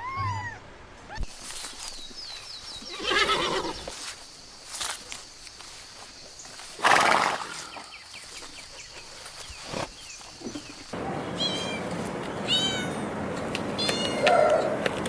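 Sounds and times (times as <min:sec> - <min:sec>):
kitten meowing: 0:11.4 - 0:11.9, 0:12.5 - 0:13.0, 0:13.8 - 0:14.7.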